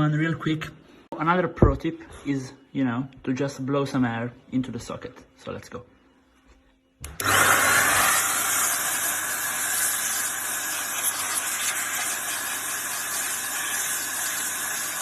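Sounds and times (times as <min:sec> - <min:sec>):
air duster hissing: 0:07.0 - 0:15.0.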